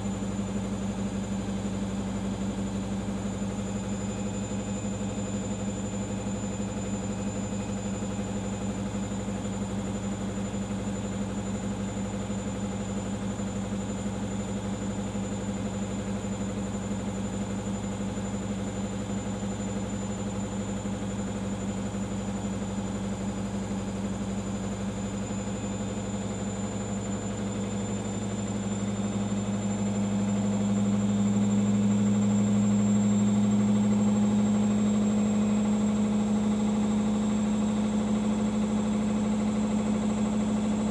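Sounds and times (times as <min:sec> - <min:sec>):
washing machine spinning: 0:00.0 - 0:40.9.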